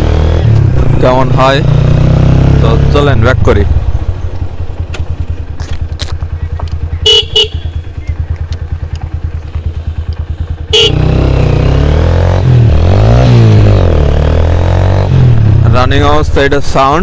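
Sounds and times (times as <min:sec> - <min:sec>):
motorcycle engine revving: 0:00.0 - 0:17.0
motorcycle engine idling: 0:03.3 - 0:12.0
motorcycle horn beeps: 0:06.8 - 0:08.4, 0:09.7 - 0:11.2.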